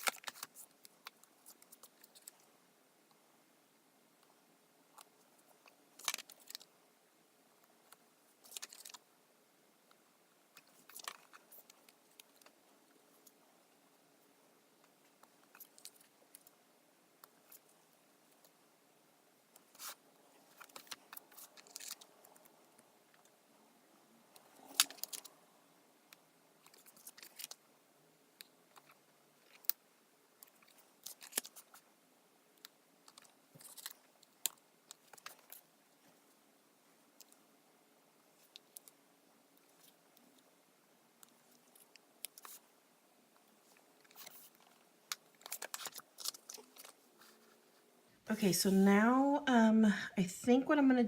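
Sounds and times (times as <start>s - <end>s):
paper crinkling: 0.0s - 2.4s, 6.0s - 6.7s, 8.4s - 9.0s, 10.6s - 12.5s, 19.6s - 22.5s, 24.4s - 25.3s, 26.6s - 27.6s, 30.4s - 31.8s, 33.0s - 35.7s, 41.2s - 42.6s, 43.6s - 47.8s.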